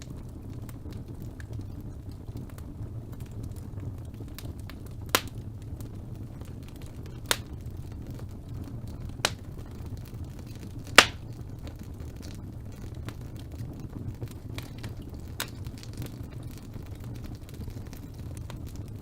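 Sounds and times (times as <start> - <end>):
fire rumbling and crackling: 0.0 - 19.0
logs popping: 3.2 - 19.0.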